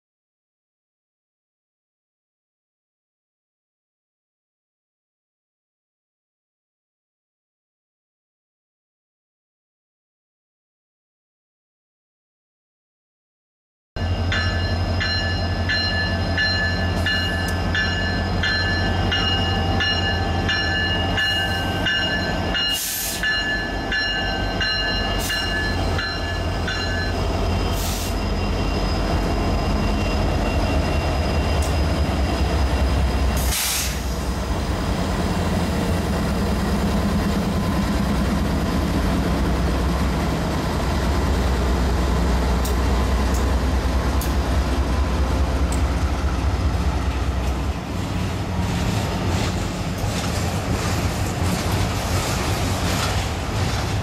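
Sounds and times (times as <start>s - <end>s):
high ringing tones: 14.0s - 33.3s
diesel locomotive engine rumble: 14.0s - 54.0s.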